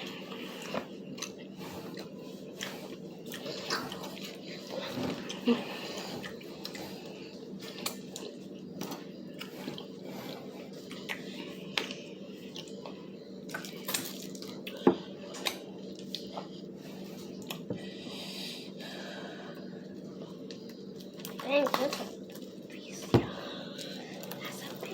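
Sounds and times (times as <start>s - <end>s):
chewing and mouth sounds: 0.0s - 16.7s
steady background hum: 0.0s - 24.9s.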